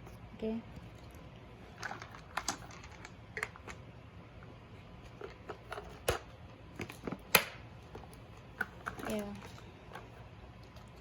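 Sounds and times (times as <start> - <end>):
plastic parts clicking and knocking: 1.7 - 3.8.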